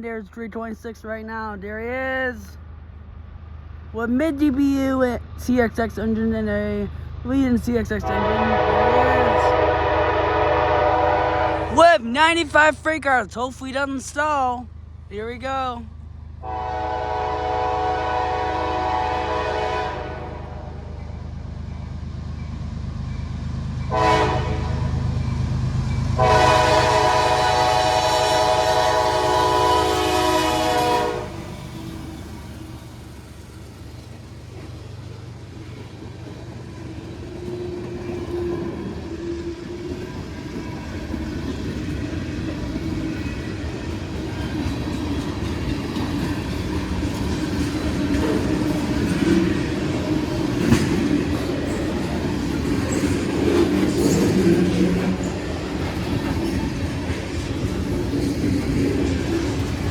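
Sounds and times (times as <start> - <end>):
freight train rumbling past: 0.0 - 59.9
locomotive horn blasts: 8.0 - 11.8, 16.4 - 20.8, 23.9 - 25.0, 26.2 - 31.5.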